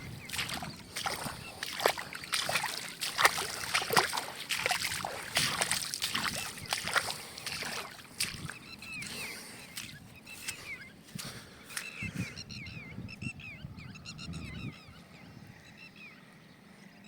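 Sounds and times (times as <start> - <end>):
rustling and splashing: 0.0 - 12.0
bird calling: 0.0 - 16.6.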